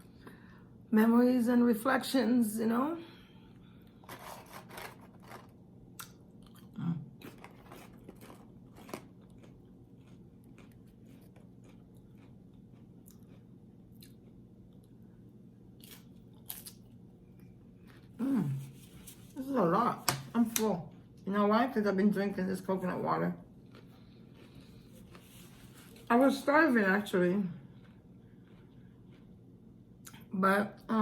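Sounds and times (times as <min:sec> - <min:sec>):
faint low hum: 0:00.0 - 0:31.0
person chewing crisp food: 0:04.0 - 0:15.0, 0:15.7 - 0:19.1, 0:23.6 - 0:26.1, 0:27.7 - 0:30.3.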